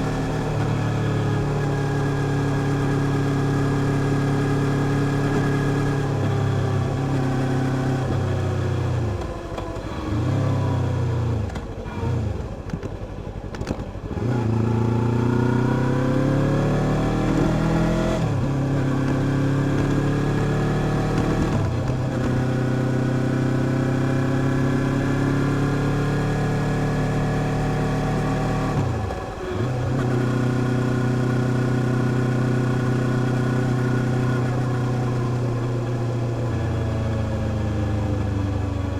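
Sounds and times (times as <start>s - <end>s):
car engine accelerating: 14.1s - 38.9s.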